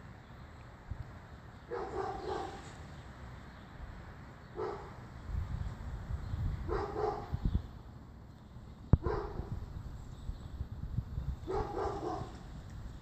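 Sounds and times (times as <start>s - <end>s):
dog barking: 1.7s - 2.6s, 4.6s - 5.0s, 6.7s - 7.3s, 9.0s - 9.5s, 11.5s - 12.4s.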